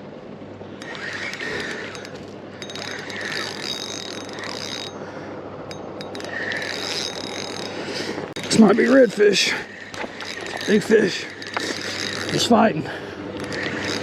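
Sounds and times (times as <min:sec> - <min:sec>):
fishing reel clicking and whirring: 0:00.8 - 0:14.0.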